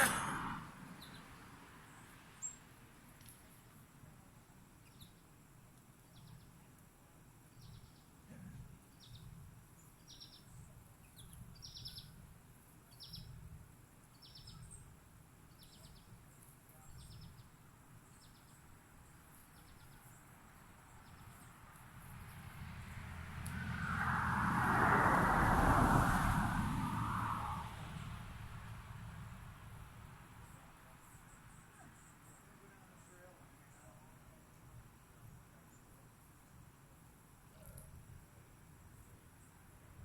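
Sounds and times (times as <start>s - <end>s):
small bird chirping faintly: 4.5s - 5.4s, 8.8s - 22.3s.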